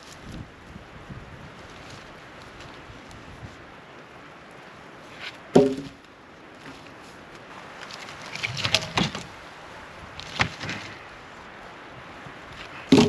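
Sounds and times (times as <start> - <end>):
wooden posts knocking together: 5.5 - 6.0, 7.8 - 9.4, 10.2 - 11.0, 12.6 - 13.0.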